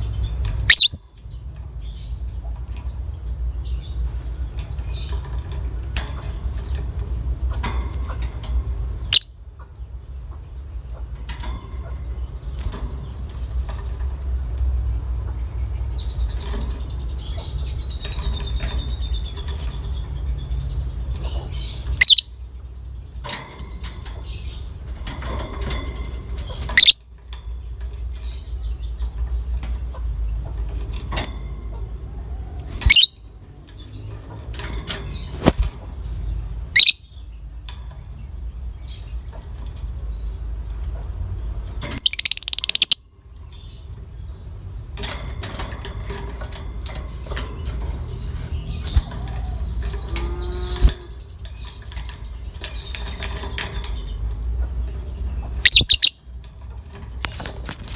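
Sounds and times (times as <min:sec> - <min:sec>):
lovebird shrill calls: 0:00.6 - 0:01.0, 0:09.0 - 0:09.3, 0:21.6 - 0:22.3, 0:26.8 - 0:27.0, 0:32.5 - 0:33.2, 0:36.7 - 0:37.1, 0:42.0 - 0:43.0, 0:55.6 - 0:56.2.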